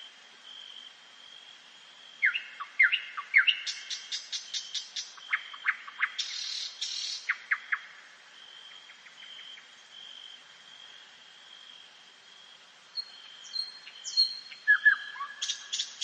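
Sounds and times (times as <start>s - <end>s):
songbirds calling: 2.2s - 8.1s, 12.9s - 16.0s.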